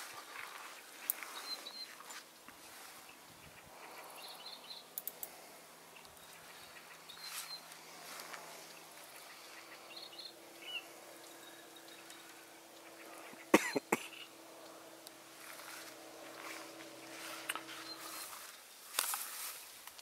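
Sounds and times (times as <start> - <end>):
small birds chirping: 0.0 - 20.0
sharp clicks: 4.9 - 5.4.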